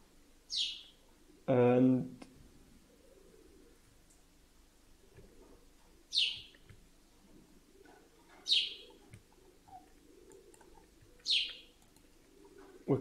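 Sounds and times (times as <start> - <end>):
bird chirping: 0.5 - 1.1, 5.0 - 13.0.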